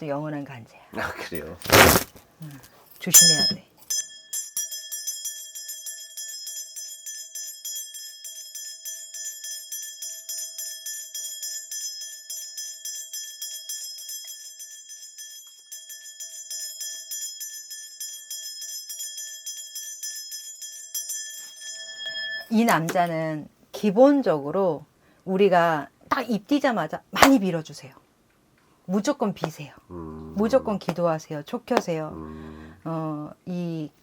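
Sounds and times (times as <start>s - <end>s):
ritual bells jingling: 3.0s - 22.7s.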